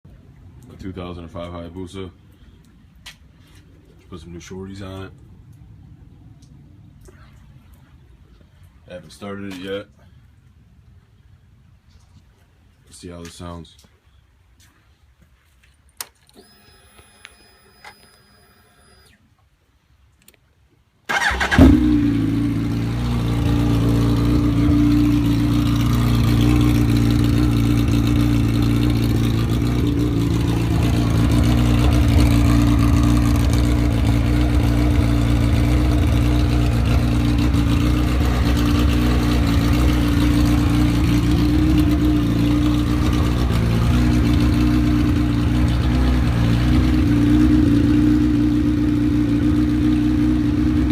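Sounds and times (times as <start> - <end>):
motorcycle engine starting and idling: 21.1 - 50.9.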